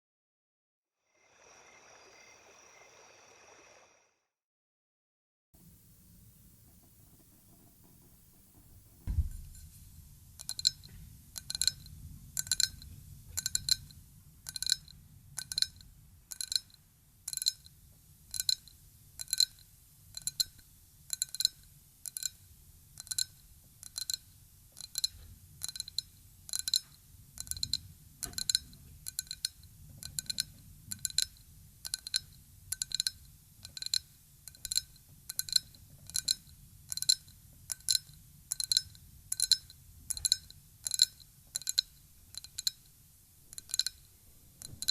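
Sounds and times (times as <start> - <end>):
glass tapping with clear ring: 34.6 - 42.8.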